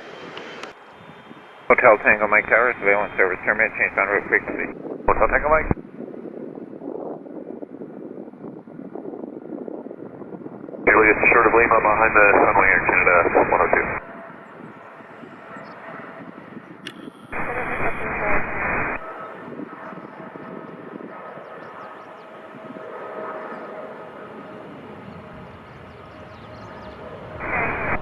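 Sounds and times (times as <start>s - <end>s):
jet engines whining: 0.0s - 5.8s, 14.9s - 28.0s
air traffic control radio: 1.7s - 5.8s, 10.9s - 14.1s, 17.0s - 19.1s, 27.4s - 28.0s.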